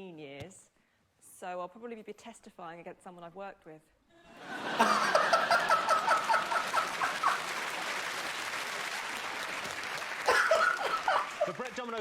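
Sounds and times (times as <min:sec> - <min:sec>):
audience laughing and applauding: 0:04.3 - 0:12.0
person laughing loudly: 0:04.6 - 0:07.5, 0:10.3 - 0:11.6.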